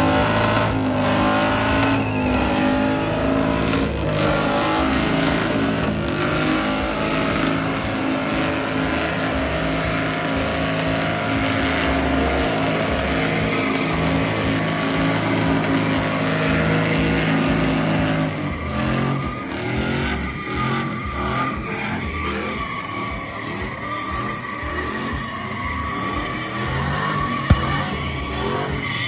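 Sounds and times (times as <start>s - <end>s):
tires spinning and squealing: 0.0s - 29.0s
truck engine revving: 0.0s - 29.0s.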